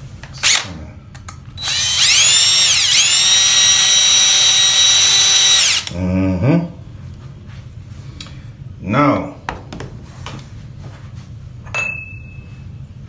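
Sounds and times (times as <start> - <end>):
power drill motor whine: 0.4 - 0.6, 1.6 - 5.9.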